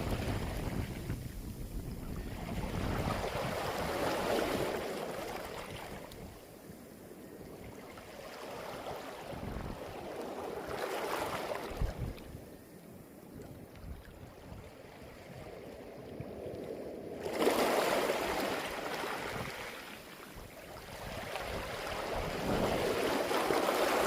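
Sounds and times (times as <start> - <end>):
waves washing on a beach: 0.0 - 24.0.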